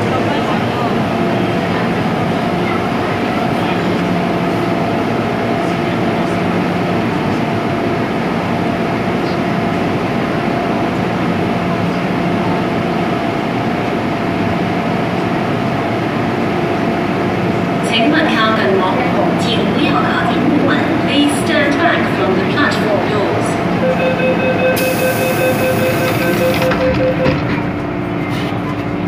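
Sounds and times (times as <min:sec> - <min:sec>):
train wheels rumbling on rail: 0:24.8 - 0:29.0.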